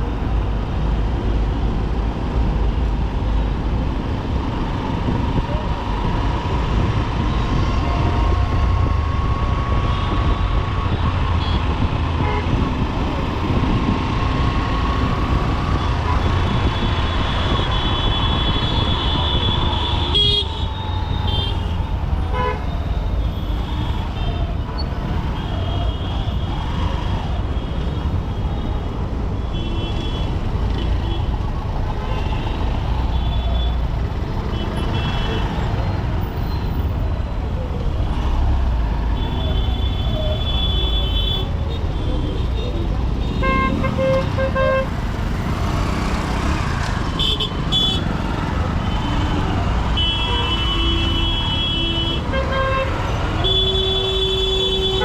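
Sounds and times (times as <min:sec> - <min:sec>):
wind and road noise: 0:00.0 - 0:55.0
vehicle horns honking: 0:16.1 - 0:21.7, 0:43.2 - 0:45.0, 0:47.2 - 0:48.1, 0:49.9 - 0:55.0.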